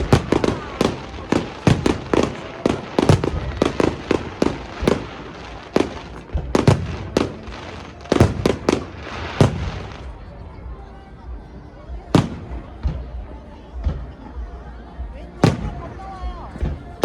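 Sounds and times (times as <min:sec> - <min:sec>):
fireworks booms and pops: 0:00.0 - 0:10.2, 0:12.1 - 0:13.2, 0:15.4 - 0:15.9.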